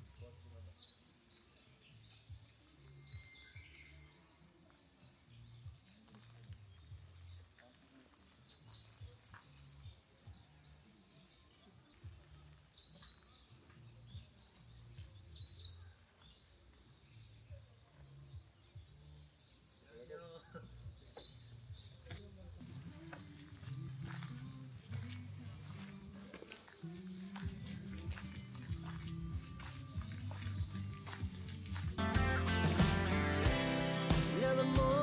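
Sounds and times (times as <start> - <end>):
songbird chirping: 0.0 - 35.0.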